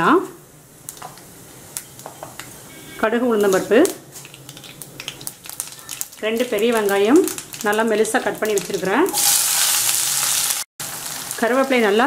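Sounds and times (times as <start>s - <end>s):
onions sizzling in oil: 0.7s - 12.0s
seeds crackling in hot oil: 3.3s - 12.0s.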